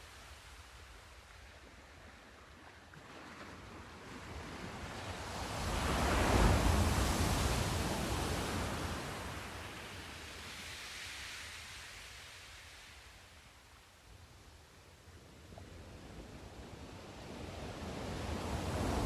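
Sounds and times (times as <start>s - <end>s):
wave breaking with rushing wash: 18.1s - 19.0s.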